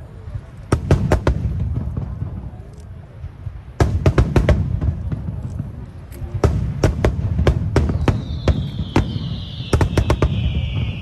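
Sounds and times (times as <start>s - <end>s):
firework shells bursting: 3.8s - 11.0s.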